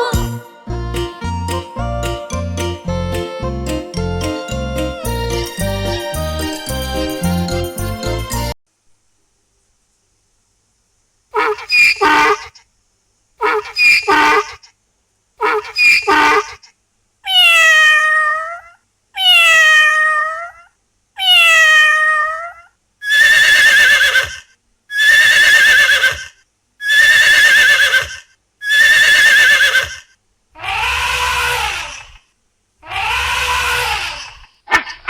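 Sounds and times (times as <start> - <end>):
high wavering animal calls: 11.4 - 12.6, 13.4 - 14.6, 15.4 - 16.6, 30.6 - 32.2, 32.8 - 34.9
meow-like cat calls: 17.2 - 24.4
low animal calls: 32.8 - 35.0.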